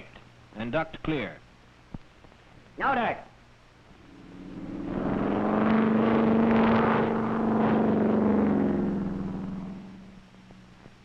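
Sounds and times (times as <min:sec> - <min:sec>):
piston aircraft engine droning: 0:03.9 - 0:11.0.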